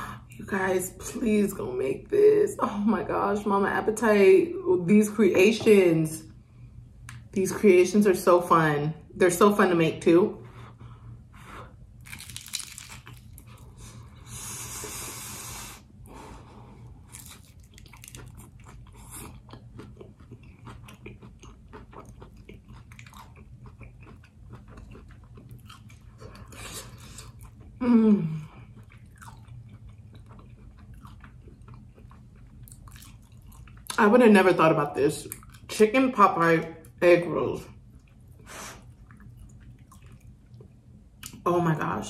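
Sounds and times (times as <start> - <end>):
breathy hiss: 14.2 - 16.9
mouth chewing clicks and smacks: 17.2 - 27.7, 28.8 - 34.0
person humming mm: 27.8 - 28.5.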